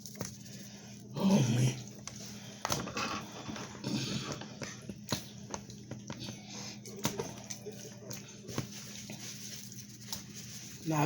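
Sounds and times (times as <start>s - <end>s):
shaker clicks and taps: 0.0s - 0.6s.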